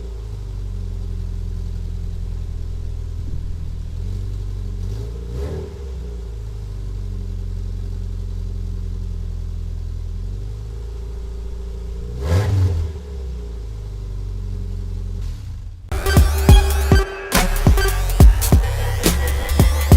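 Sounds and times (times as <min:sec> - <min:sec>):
car engine idling and revving: 0:00.0 - 0:19.9.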